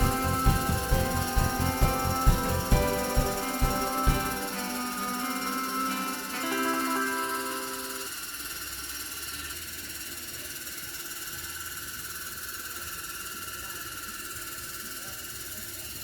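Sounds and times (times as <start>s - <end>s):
low hum: 0.0s - 5.6s
high-pitched hiss: 0.0s - 8.2s.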